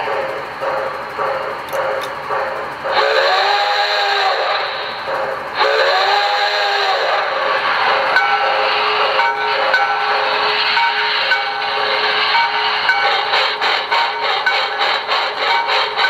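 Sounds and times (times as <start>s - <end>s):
steam locomotive whistle: 1.7s - 16.0s
steam hiss: 2.5s - 16.0s.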